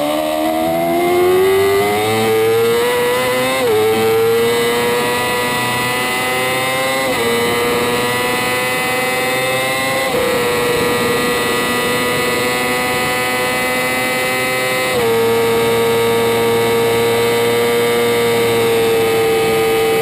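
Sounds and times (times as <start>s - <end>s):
sport bike engine at high revs: 0.0s - 20.0s
wind and road noise: 0.0s - 20.0s.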